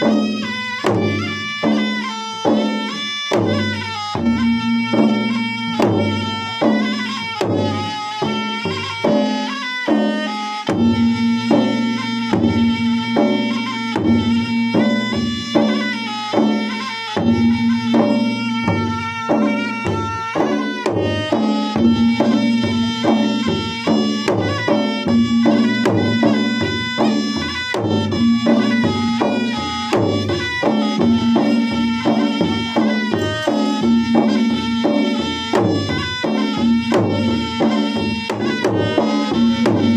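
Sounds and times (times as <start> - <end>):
drums beaten in fast rhythm: 0.0 - 39.9
reedy wind instrument melody: 0.0 - 39.9.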